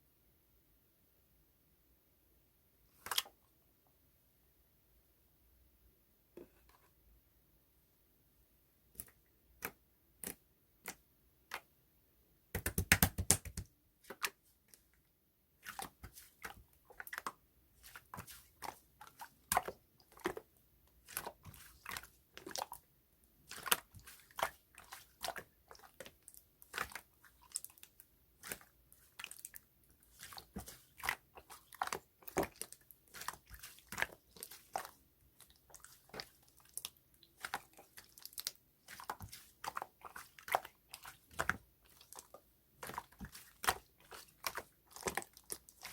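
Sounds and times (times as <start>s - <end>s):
slime clicking and popping: 12.6s - 13.6s.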